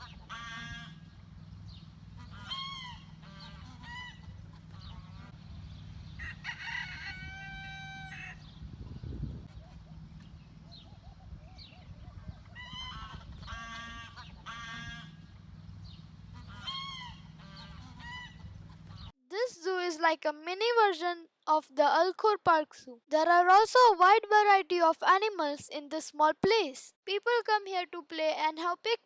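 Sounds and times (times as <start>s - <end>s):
short fowl calls: 0.0s - 1.2s, 2.2s - 5.4s, 6.2s - 8.5s, 10.7s - 15.3s, 16.3s - 19.1s
fowl honking calls: 0.0s - 1.3s, 2.1s - 5.4s, 6.2s - 8.5s, 9.5s - 15.4s, 16.3s - 19.1s
steady low hum: 0.0s - 19.1s
rooster crowing: 6.1s - 8.5s.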